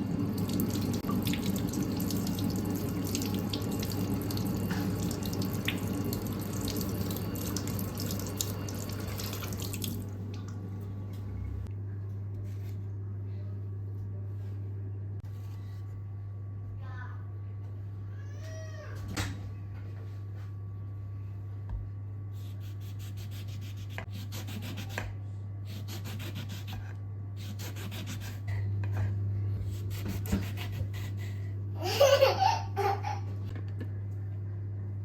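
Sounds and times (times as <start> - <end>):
steady low hum: 0.0 - 18.2, 19.3 - 35.0.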